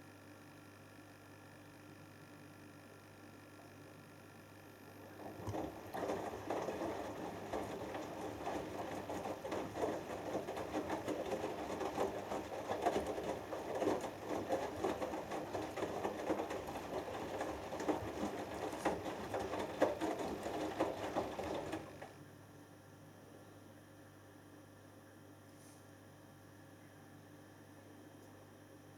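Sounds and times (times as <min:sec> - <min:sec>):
washing machine drum tumbling: 0:05.1 - 0:22.2.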